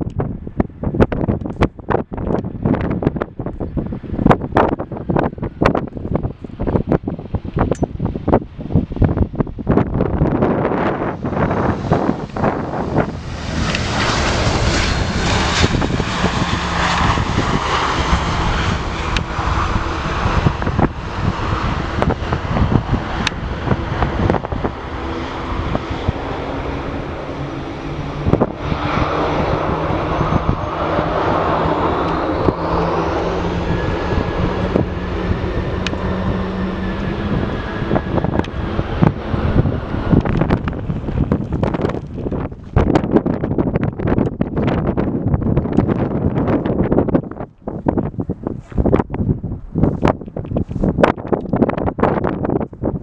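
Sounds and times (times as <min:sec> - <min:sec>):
jet engines roaring: 0:00.0 - 0:53.0
wind buffeting microphone: 0:00.0 - 0:53.0
high-pitched whine: 0:10.6 - 0:42.0.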